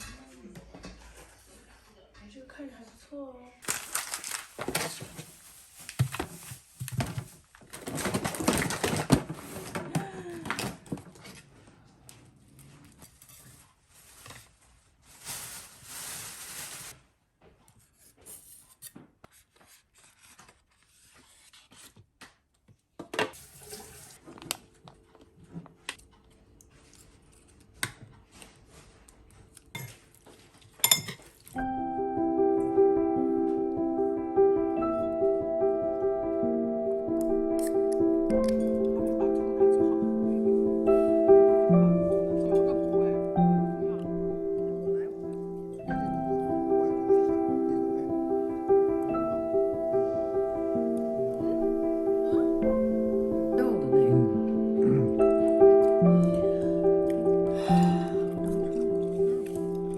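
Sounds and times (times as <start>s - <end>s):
rustling: 3.6s - 10.0s, 12.5s - 17.2s
gentle piano music: 31.6s - 59.9s.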